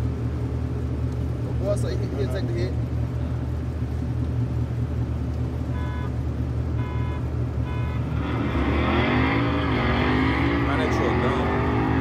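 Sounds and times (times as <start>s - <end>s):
vehicle engines idling: 0.0s - 12.0s
engine revving: 7.7s - 12.0s.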